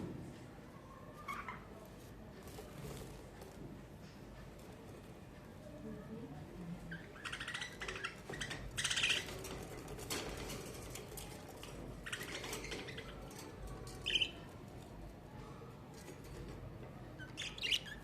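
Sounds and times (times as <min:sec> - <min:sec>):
budgerigars chirping: 0:07.1 - 0:09.4, 0:14.1 - 0:14.4, 0:17.2 - 0:18.0.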